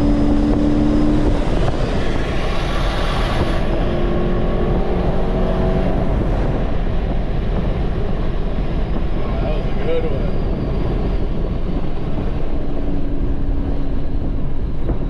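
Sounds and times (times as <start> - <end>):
car engine accelerating: 0.0 - 8.0
wind and road rush: 0.0 - 15.0.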